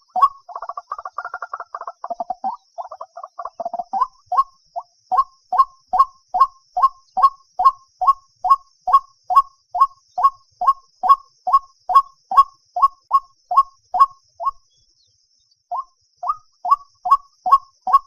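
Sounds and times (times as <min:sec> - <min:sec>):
waterhen calling: 0:00.0 - 0:07.4.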